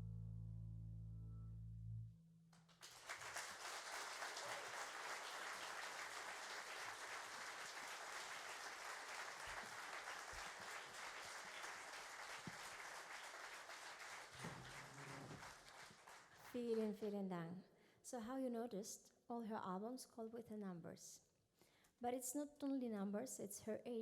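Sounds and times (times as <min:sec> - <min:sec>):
audience applauding: 0:02.7 - 0:16.5.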